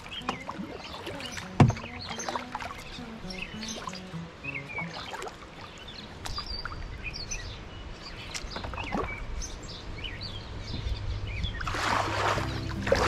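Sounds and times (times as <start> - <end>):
small birds chirping: 0.0 - 11.7.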